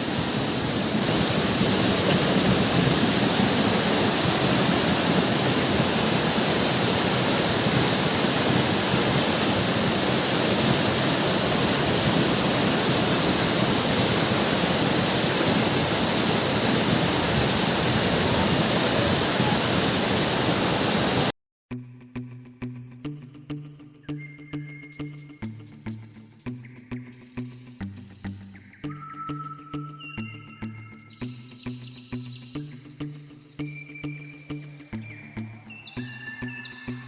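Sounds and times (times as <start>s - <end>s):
waterfall rushing: 0.0s - 21.3s
music with plucked notes: 21.7s - 37.0s.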